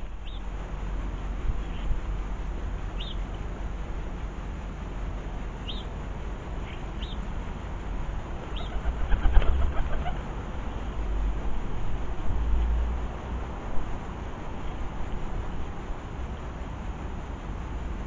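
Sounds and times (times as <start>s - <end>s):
small bird chirping: 0.0s - 0.5s, 1.6s - 2.0s, 2.9s - 3.3s, 5.6s - 5.9s, 6.6s - 7.3s, 8.4s - 10.2s
steady low rumble: 0.0s - 18.0s
pigeon wings flapping: 8.7s - 10.1s.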